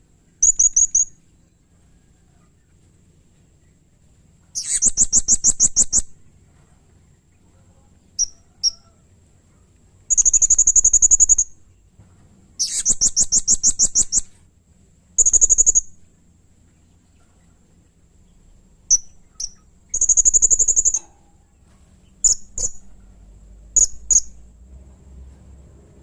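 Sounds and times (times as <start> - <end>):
parrot chirps: 0.4 - 1.2, 4.5 - 6.2, 8.2 - 9.0, 10.1 - 11.6, 12.6 - 14.4, 15.2 - 16.0, 18.9 - 21.4, 22.2 - 22.9, 23.8 - 24.5
parrot trilled calls: 0.4 - 1.2, 4.5 - 6.2, 8.2 - 9.0, 10.1 - 11.6, 12.6 - 14.4, 15.2 - 16.0, 18.9 - 21.4, 22.2 - 22.9, 23.8 - 24.4.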